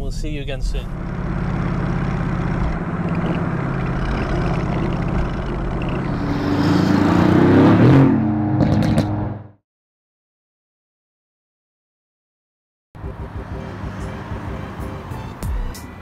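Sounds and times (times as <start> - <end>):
exhaust crackles: 0.1 - 9.2
car engine revving: 0.7 - 9.6, 13.0 - 16.0.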